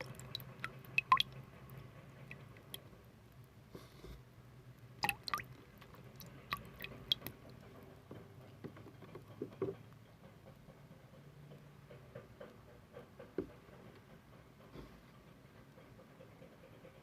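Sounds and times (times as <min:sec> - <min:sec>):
wet clicks and squishes: 0:00.0 - 0:01.4, 0:05.0 - 0:07.6.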